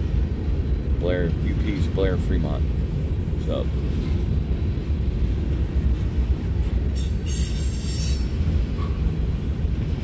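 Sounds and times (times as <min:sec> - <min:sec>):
freight cars rumbling on rail: 0:00.0 - 0:10.0
high-pitched wheel squeal: 0:07.0 - 0:08.4.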